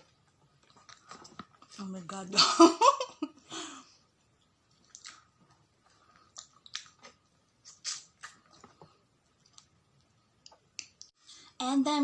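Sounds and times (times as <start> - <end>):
person chewing with mouth clicks: 4.7 - 8.8.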